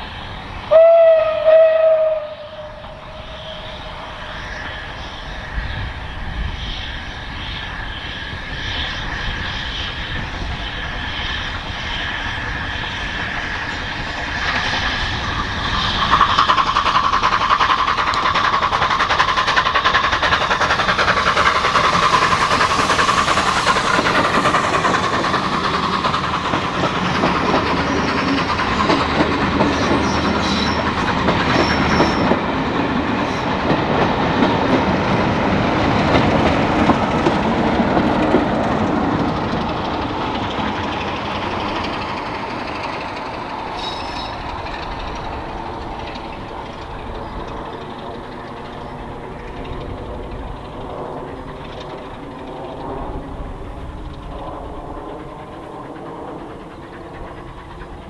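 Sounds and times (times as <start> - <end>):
train wheels clattering over rail joints: 12.3 - 58.0.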